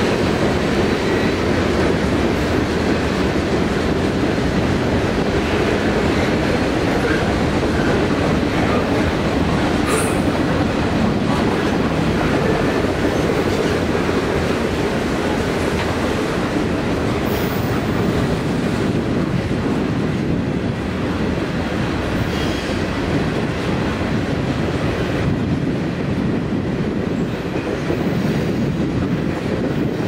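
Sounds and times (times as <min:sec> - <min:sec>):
train wheels clacking on rail joints: 0:00.0 - 0:19.7.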